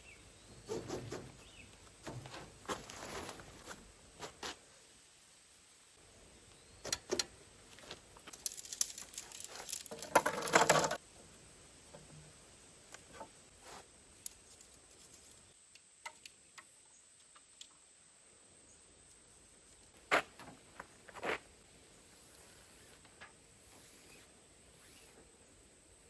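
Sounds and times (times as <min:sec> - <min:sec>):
crinkly rustling: 0:07.7 - 0:11.0.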